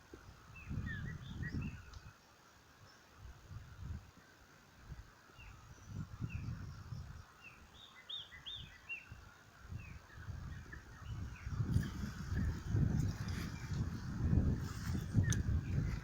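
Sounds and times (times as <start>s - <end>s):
small birds chirping: 0.1s - 3.2s, 5.2s - 16.0s.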